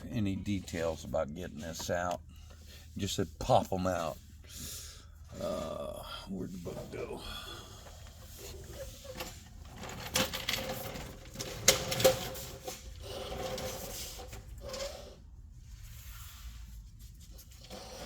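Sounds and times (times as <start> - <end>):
rustling and handling noise: 0.0 - 14.9, 15.5 - 18.0.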